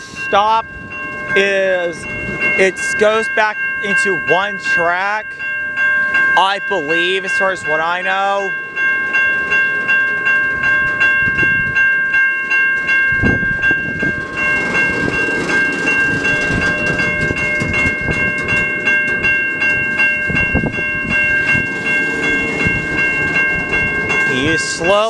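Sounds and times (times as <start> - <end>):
railroad crossing bell ringing: 0.0 - 25.0
train wheels rumbling and clacking: 0.0 - 25.0.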